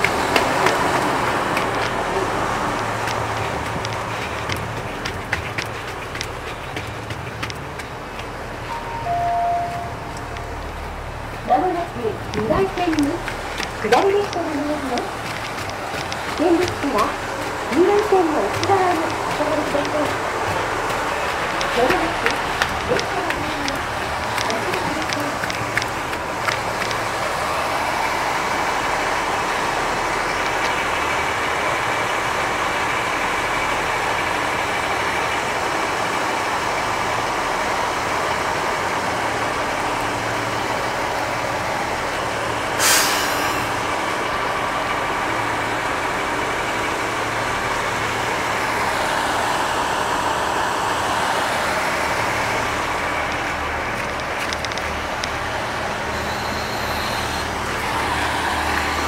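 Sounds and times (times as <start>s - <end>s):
diesel train engine running: 0.0s - 59.0s
air hiss: 42.8s - 43.8s.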